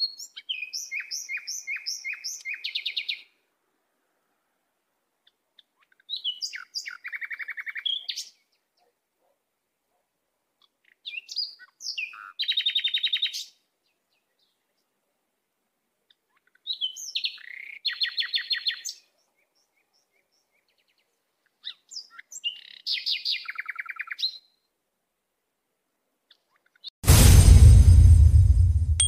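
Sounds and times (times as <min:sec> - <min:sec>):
songbird whistles and trill: 0:00.0 - 0:03.2.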